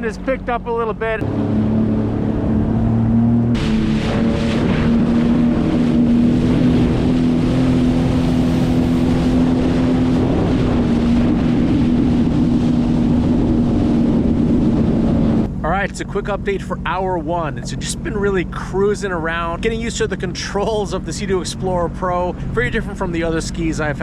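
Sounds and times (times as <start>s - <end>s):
watercraft engine droning: 0.0s - 24.0s
wind noise on microphone: 1.2s - 15.5s.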